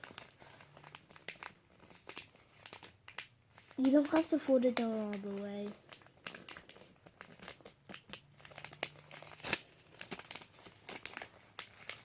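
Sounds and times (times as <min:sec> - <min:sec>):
paper being folded and creased: 0:00.0 - 0:12.0.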